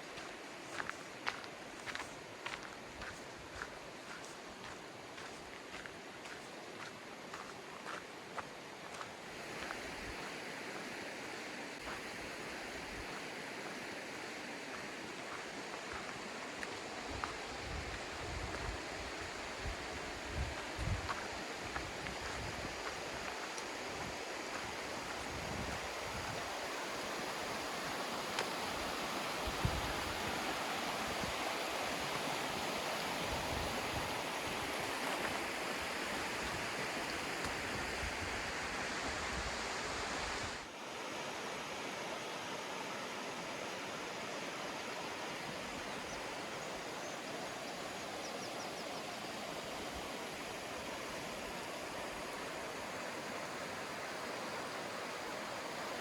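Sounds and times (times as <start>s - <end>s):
rushing river water: 0.0s - 56.0s
wind buffeting microphone: 19.6s - 22.9s.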